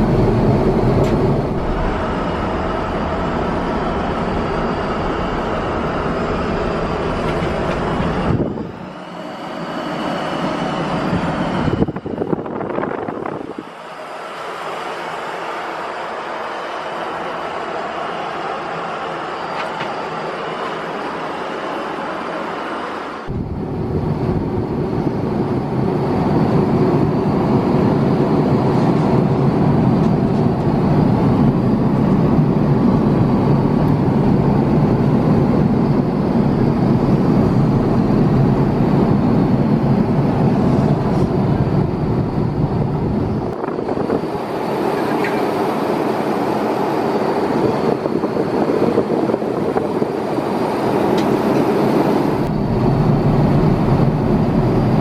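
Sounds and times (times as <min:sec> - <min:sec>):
air rushing past: 0:00.0 - 0:04.3, 0:22.8 - 0:26.3
jet engines in airliner cabin: 0:00.0 - 0:55.0.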